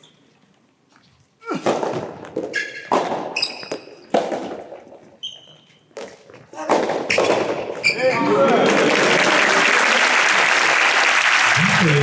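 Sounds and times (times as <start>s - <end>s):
shoes squeaking on court floor: 0.0s - 1.2s, 2.0s - 8.3s
tennis ball impacts echoing: 1.6s - 4.9s.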